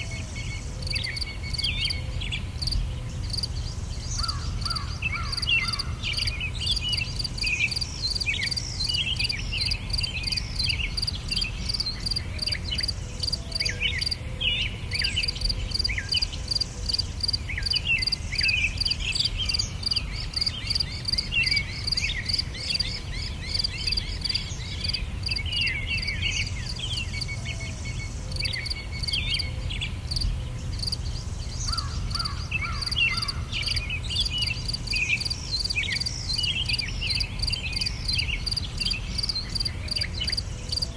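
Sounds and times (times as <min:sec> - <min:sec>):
birds chirping and whistling: 0:00.0 - 0:40.8
insects chirping: 0:00.0 - 0:40.9
lower-pitched bird call: 0:03.2 - 0:30.0, 0:31.5 - 0:40.4.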